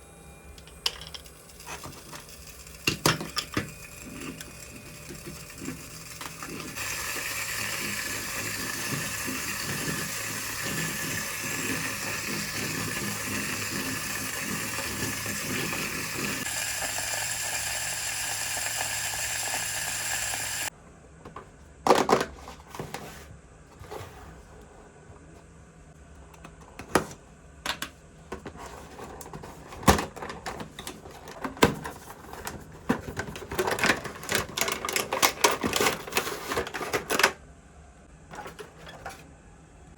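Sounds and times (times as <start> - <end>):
small battery motor whirring: 0.0 - 20.7
plastic parts clicking and tapping: 0.6 - 16.0, 29.2 - 37.4.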